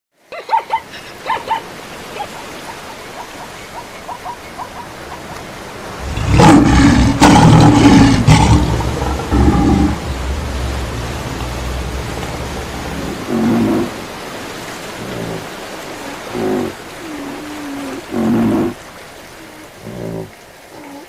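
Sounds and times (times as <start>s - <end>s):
rain-like hiss: 0.2s - 21.0s
loud low roar: 6.0s - 14.1s.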